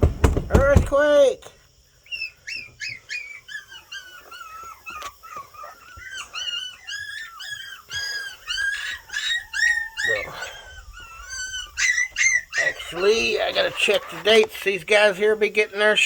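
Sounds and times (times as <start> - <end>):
puppies whining and yipping: 1.9 - 14.6.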